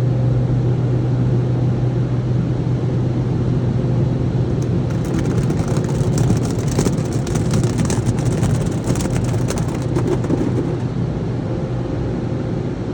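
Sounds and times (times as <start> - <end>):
spattering crackle: 4.5 - 10.9.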